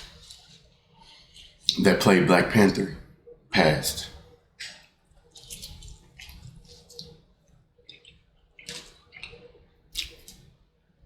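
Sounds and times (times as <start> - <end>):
chewing and lip smacking: 0.0 - 1.8, 4.6 - 10.6.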